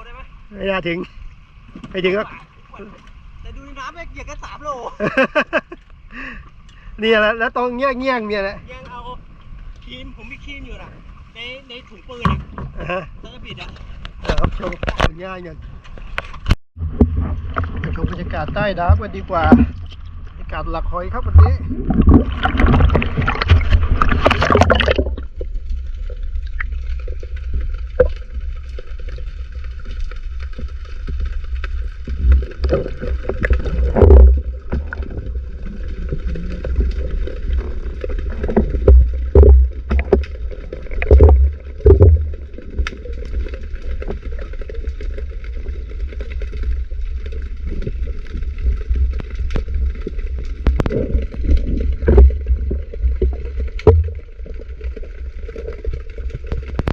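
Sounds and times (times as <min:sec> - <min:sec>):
underwater rumble of moving water: 0:00.0 - 0:56.9
loud thumps: 0:16.8 - 0:19.9, 0:33.5 - 0:35.0, 0:38.4 - 0:40.4, 0:41.0 - 0:42.5, 0:52.0 - 0:54.3
knocks and clicks: 0:38.5 - 0:40.4, 0:41.0 - 0:42.4, 0:53.2 - 0:54.3.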